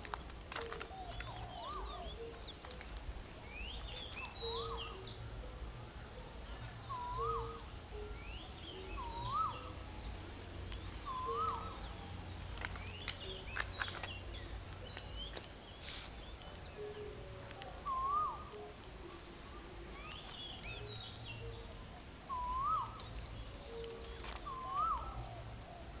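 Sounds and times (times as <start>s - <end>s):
bird whistled call: 0.6s - 2.9s, 3.5s - 5.2s, 6.8s - 9.8s, 11.0s - 12.0s, 17.8s - 18.7s, 20.0s - 21.7s, 22.3s - 25.4s
high bird chirps: 0.6s - 2.9s, 3.5s - 5.2s, 6.9s - 9.8s, 11.0s - 12.0s.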